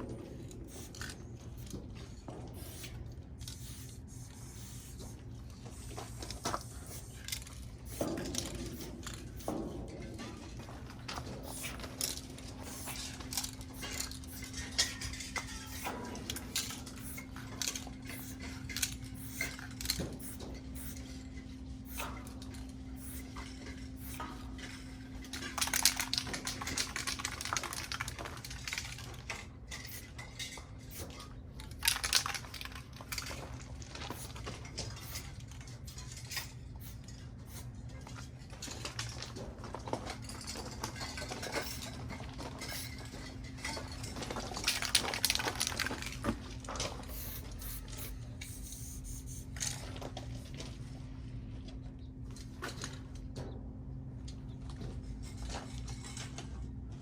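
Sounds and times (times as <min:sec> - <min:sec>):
mixing balls rattling in spray cans: 0:00.0 - 0:50.0
steady low hum: 0:00.0 - 0:57.0
spray can hissing: 0:02.6 - 0:02.9, 0:03.5 - 0:05.0.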